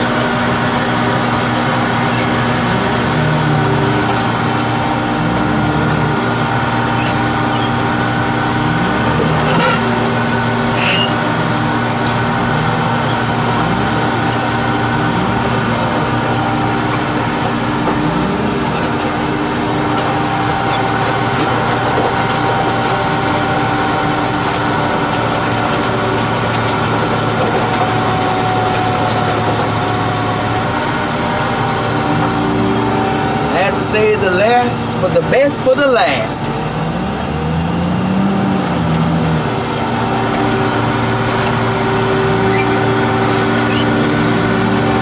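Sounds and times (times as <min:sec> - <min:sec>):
engine running: 0:00.0 - 0:45.0.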